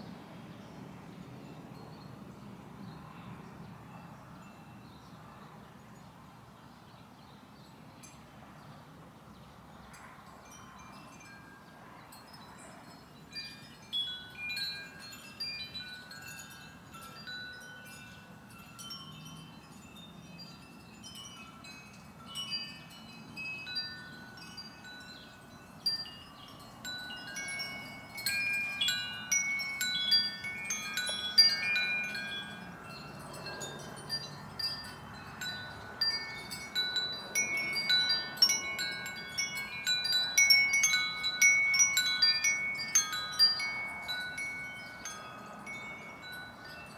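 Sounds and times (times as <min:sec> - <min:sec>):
wind chimes ringing: 0:10.4 - 0:46.9.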